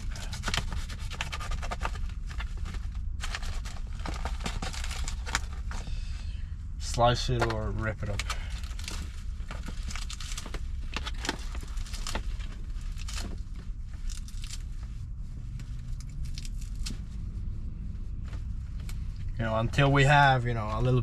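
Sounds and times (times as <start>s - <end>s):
steady low rumble: 0.0s - 21.0s
lettuce leaves crackling and snapping: 16.1s - 16.9s.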